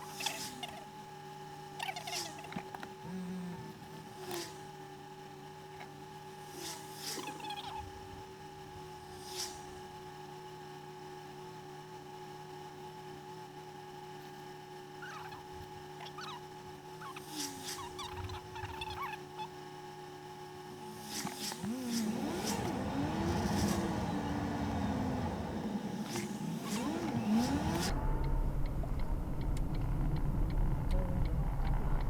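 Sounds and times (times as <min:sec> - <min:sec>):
car engine and road rumble: 0:20.9 - 0:32.0
rising and falling tones: 0:20.9 - 0:32.0.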